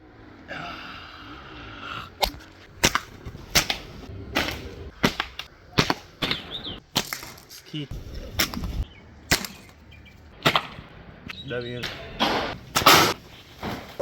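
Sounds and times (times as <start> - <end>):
sharp cracks: 2.2 - 14.0.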